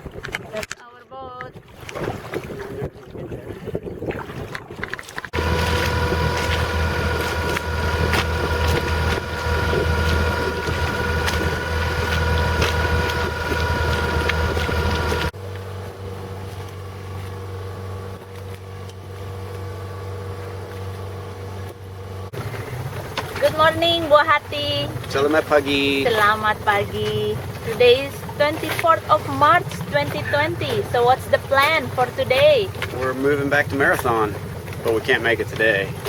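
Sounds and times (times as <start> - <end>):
wind noise on microphone: 1.4 - 15.3
boat motor running: 2.4 - 36.0.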